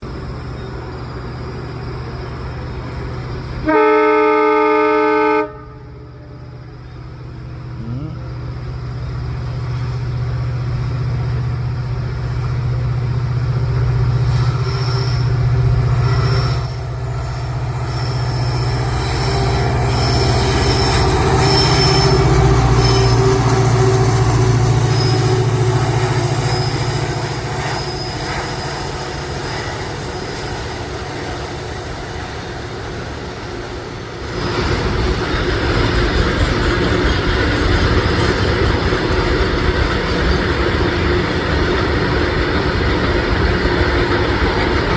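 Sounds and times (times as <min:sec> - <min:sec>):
locomotive engine humming: 0:00.0 - 0:44.9
train horn blast: 0:03.6 - 0:06.6
wheel squeal: 0:14.2 - 0:31.4.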